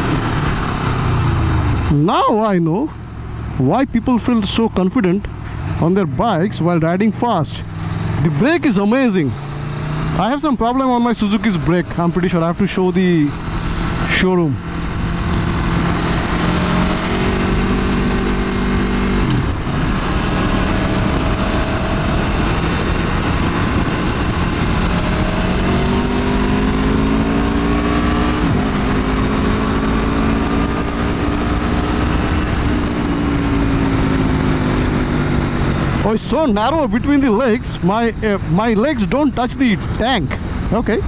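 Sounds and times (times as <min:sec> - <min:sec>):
wind and road noise: 0:00.0 - 0:41.0.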